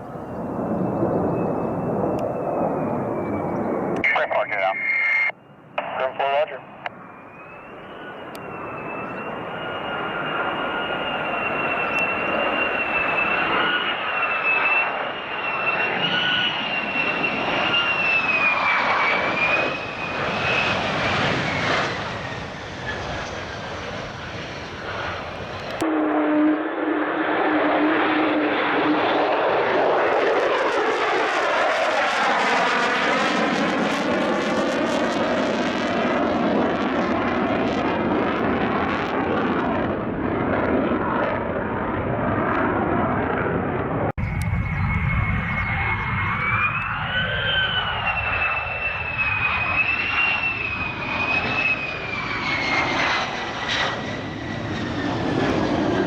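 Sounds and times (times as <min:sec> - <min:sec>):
fighter jet flying past low: 0:00.0 - 0:56.0
high jet engine whine: 0:00.0 - 0:56.0.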